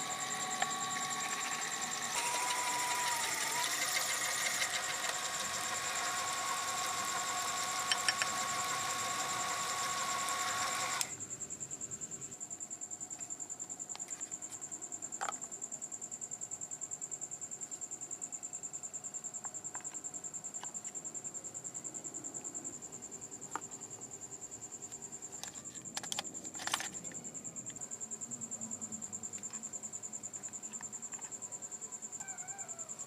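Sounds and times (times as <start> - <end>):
insect trilling: 0.0 - 11.2, 29.3 - 33.0.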